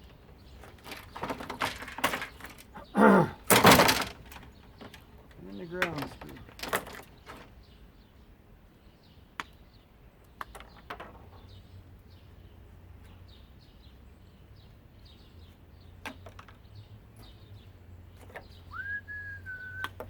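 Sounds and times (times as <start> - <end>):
parts clicking and knocking: 0.0 - 7.6
small birds chirping: 0.0 - 20.0
whistle-like tone: 18.7 - 20.0.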